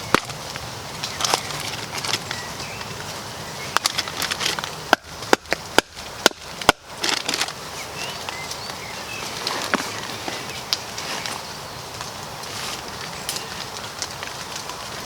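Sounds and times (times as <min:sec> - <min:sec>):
wood splitting knocks and cracks: 0:00.0 - 0:02.3, 0:03.7 - 0:07.6.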